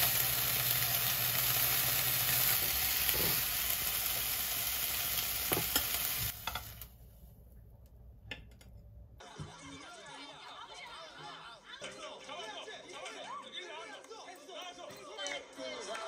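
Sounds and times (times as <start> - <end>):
food sizzling in frying pan: 0.0 - 7.0.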